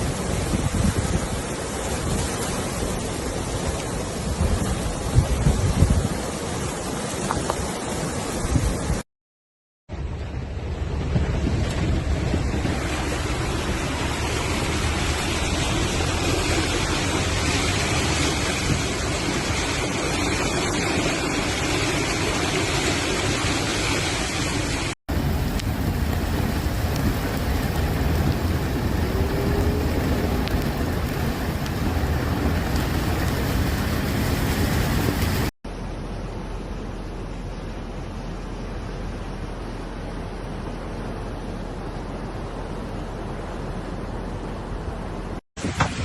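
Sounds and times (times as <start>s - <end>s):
floodwater rushing: 0.0s - 9.0s, 9.9s - 46.0s
wind buffeting microphone: 0.0s - 9.0s, 10.0s - 24.0s, 25.1s - 35.5s.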